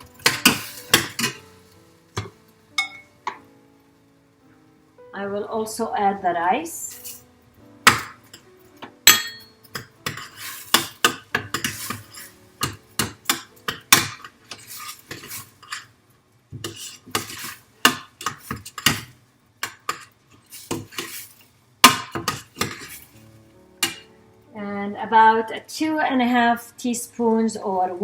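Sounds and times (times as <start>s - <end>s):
spoon scraping metal pot: 9.2s - 15.9s, 16.6s - 21.4s, 22.2s - 23.2s.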